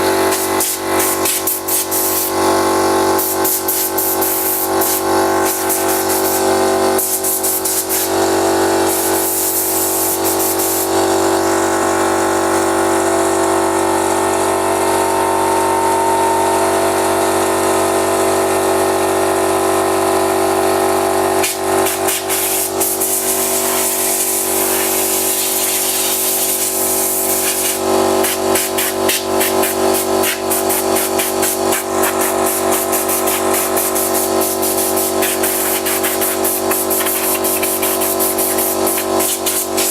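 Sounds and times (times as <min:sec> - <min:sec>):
air compressor running: 0:00.0 - 0:39.9
blow gun hissing air: 0:00.3 - 0:02.4, 0:03.2 - 0:08.1, 0:08.8 - 0:11.0, 0:21.8 - 0:39.9.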